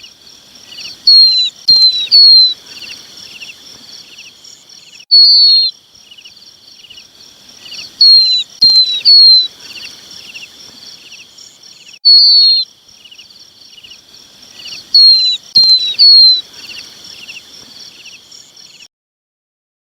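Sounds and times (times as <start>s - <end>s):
chick whistling calls: 0.7s - 3.6s, 5.0s - 5.8s, 7.7s - 10.5s, 12.0s - 12.7s, 14.6s - 17.4s
fast even chirping: 0.7s - 3.6s, 5.1s - 5.8s, 7.6s - 10.5s, 12.0s - 12.7s, 14.5s - 17.4s.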